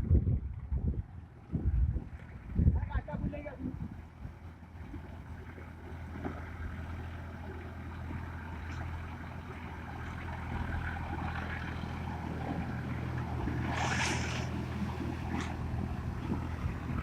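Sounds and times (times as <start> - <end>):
tractor diesel engine droning: 3.7 - 17.0.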